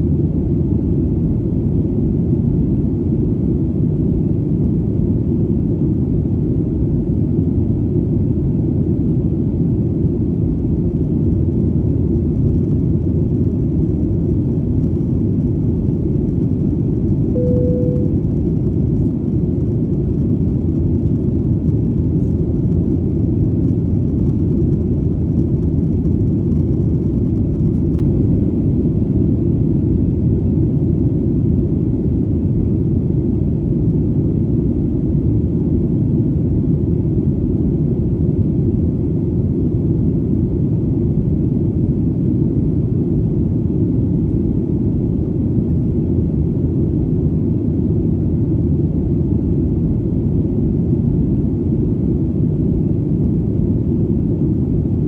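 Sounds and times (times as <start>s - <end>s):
airplane engines rumbling: 0.4s - 36.1s.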